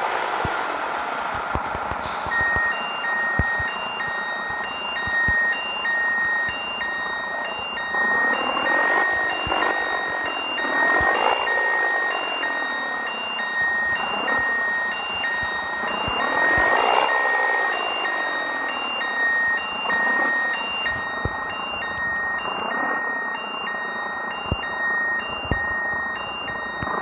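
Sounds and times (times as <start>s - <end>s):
reversing alarm beeping: 1.3s - 27.0s.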